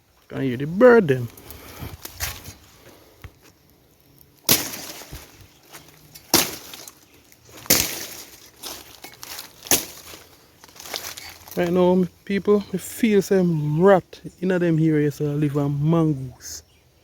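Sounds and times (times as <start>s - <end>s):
machete chopping strikes: 4.4s - 7.0s, 7.6s - 10.2s.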